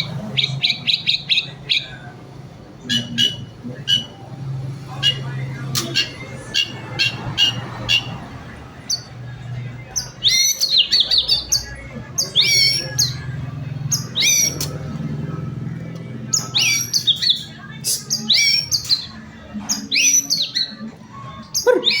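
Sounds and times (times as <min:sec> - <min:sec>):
bird singing whistles and chips: 0:16.3 - 0:19.1, 0:19.7 - 0:20.8.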